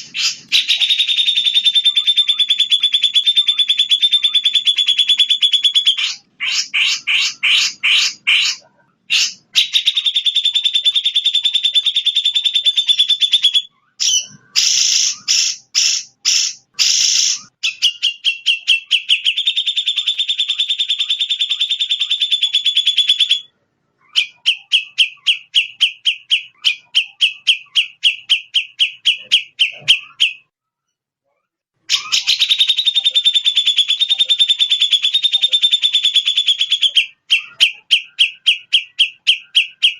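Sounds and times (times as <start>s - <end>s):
recorded songbird trills and chips: 0.0s - 23.5s, 31.9s - 39.9s.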